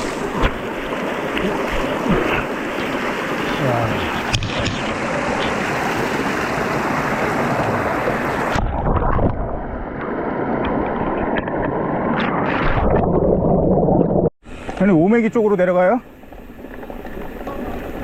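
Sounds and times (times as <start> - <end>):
bike tyres rolling noise: 16.1 - 18.0.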